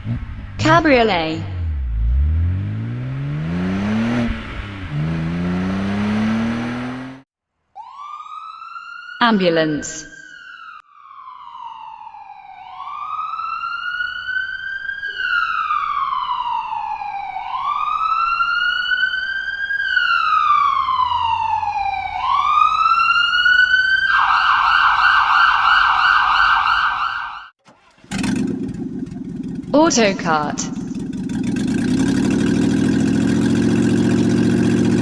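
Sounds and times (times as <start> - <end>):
ambulance siren wailing: 7.8 - 27.6.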